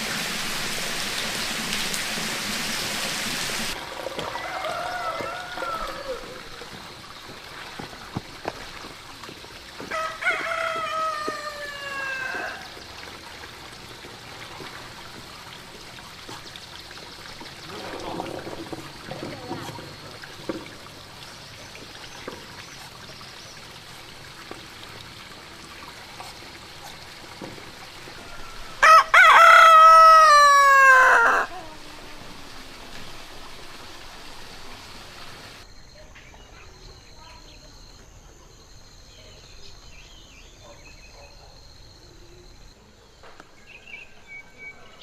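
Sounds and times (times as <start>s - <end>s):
steady rain hiss: 0.0s - 35.7s
rooster crowing: 4.1s - 6.6s, 9.9s - 12.7s, 28.1s - 31.9s.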